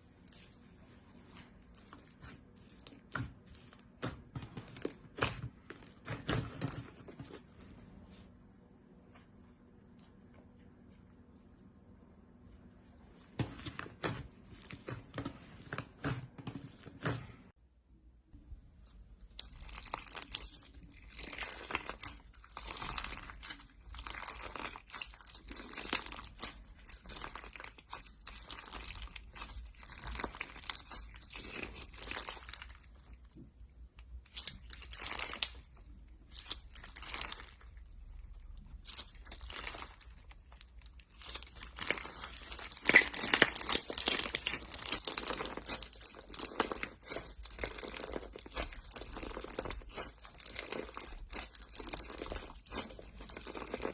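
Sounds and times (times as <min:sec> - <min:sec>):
slime crackling and popping: 0:19.0 - 0:53.9.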